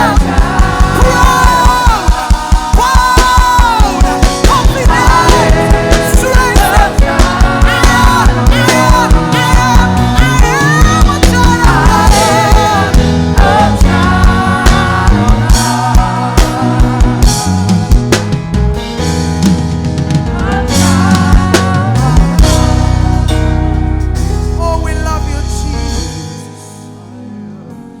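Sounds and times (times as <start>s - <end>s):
person singing: 0.0s - 18.0s, 20.3s - 23.3s
kick drum beat: 0.0s - 18.1s
upbeat worship band: 0.0s - 28.0s.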